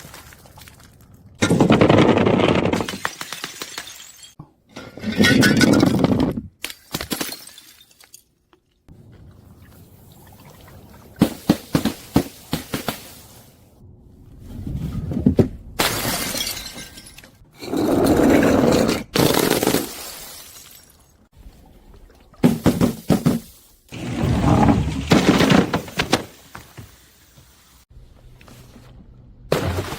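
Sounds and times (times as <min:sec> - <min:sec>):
glass bottles shattering: 0:02.6 - 0:04.4, 0:05.0 - 0:08.3, 0:15.8 - 0:17.4.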